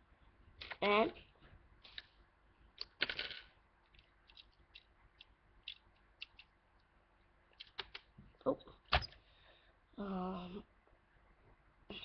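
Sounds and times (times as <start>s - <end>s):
plastic bricks rattling: 2.8s - 3.5s
plastic bricks clicking together: 2.8s - 6.5s.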